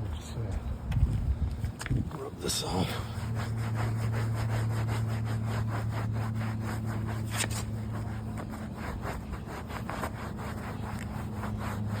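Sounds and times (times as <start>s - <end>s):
steady low hum: 0.0s - 12.0s
towel scrubbing fabric: 2.5s - 12.0s.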